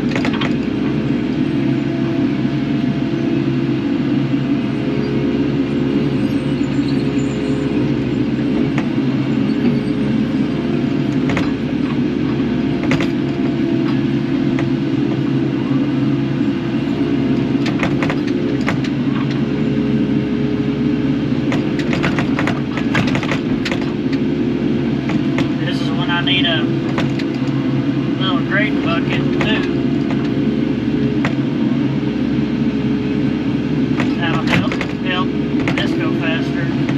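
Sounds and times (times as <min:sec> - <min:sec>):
sharp clanks and knocks: 0:00.0 - 0:00.7, 0:11.1 - 0:15.2, 0:17.6 - 0:19.4, 0:21.5 - 0:24.3, 0:25.0 - 0:25.7, 0:26.8 - 0:27.6, 0:29.1 - 0:30.4, 0:33.9 - 0:36.2
excavator diesel engine running: 0:00.0 - 0:36.9.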